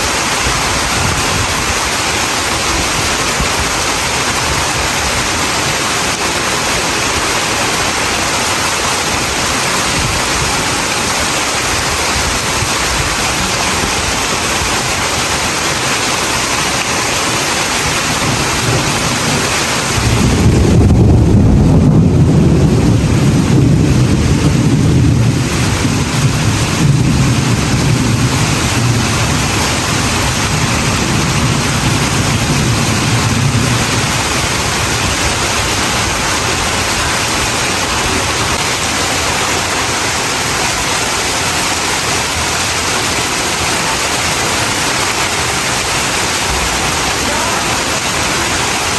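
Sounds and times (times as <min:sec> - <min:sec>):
heavy rain hissing: 0:00.0 - 0:48.9
deep rumble of thunder: 0:17.3 - 0:39.0.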